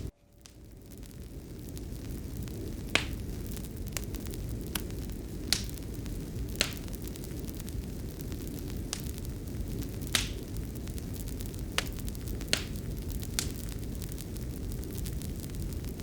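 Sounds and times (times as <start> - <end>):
fire crackling and popping: 0.0 - 16.0
fire rumbling: 0.0 - 16.0.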